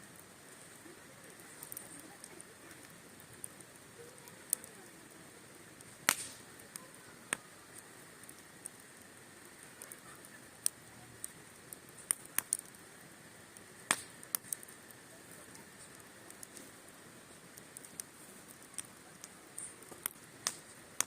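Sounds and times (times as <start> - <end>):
faint steady hiss: 0.0 - 21.0
wood fire crackling: 0.0 - 21.0.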